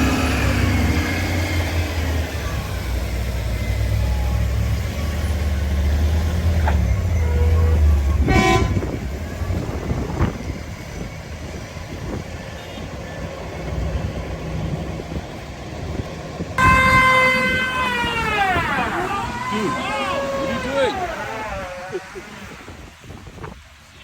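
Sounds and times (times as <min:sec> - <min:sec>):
heavy vehicle engine rumbling: 0:00.0 - 0:24.0
traffic noise: 0:00.0 - 0:24.0
loud vehicle horn: 0:07.2 - 0:09.0, 0:16.6 - 0:22.6.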